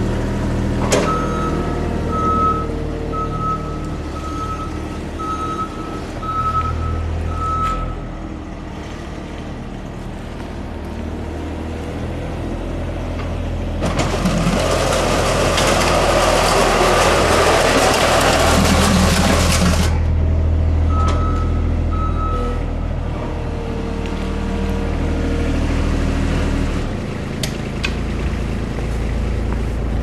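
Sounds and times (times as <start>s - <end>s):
loader engine droning: 0.0s - 30.0s
reversing alarm beeps: 1.1s - 8.1s, 20.9s - 22.6s
plow edge scraping along ground: 8.7s - 20.8s.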